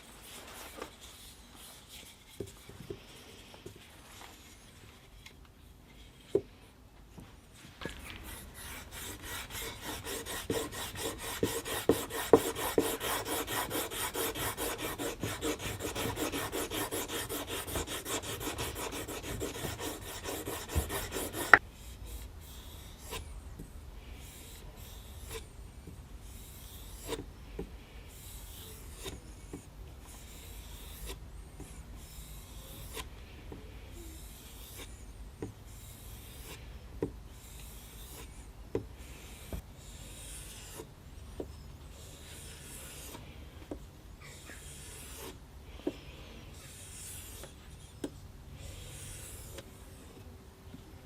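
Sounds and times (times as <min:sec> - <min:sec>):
file rubbing strokes on knife: 0:08.0 - 0:23.4, 0:26.2 - 0:27.2, 0:28.0 - 0:33.2, 0:33.8 - 0:36.7, 0:37.4 - 0:40.9, 0:41.8 - 0:43.4, 0:44.2 - 0:45.5, 0:46.5 - 0:48.0, 0:48.6 - 0:50.2.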